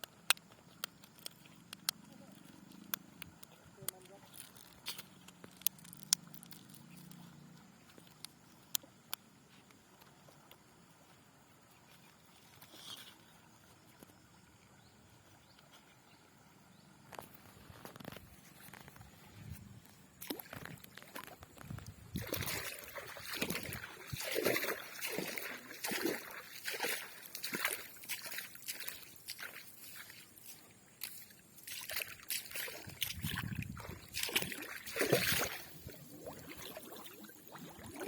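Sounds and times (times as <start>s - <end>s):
river water splashing: 13.3s - 38.0s.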